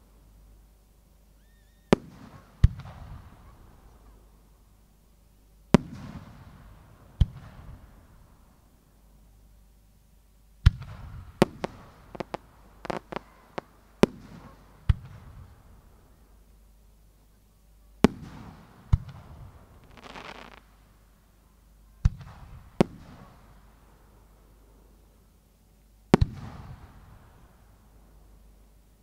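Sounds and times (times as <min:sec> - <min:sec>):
small firework cracks: 0:10.6 - 0:15.4, 0:18.0 - 0:20.7
fireworks bangs with echo: 0:10.6 - 0:15.7, 0:18.0 - 0:20.6, 0:22.0 - 0:23.4, 0:26.1 - 0:27.2.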